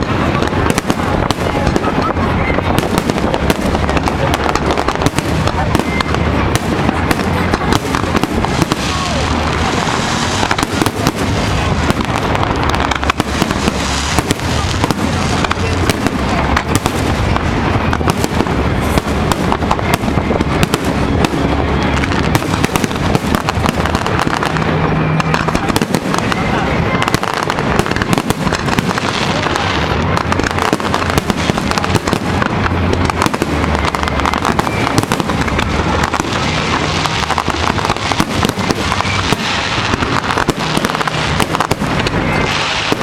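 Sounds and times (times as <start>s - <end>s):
fireworks bursting and crackling: 0.0s - 43.0s.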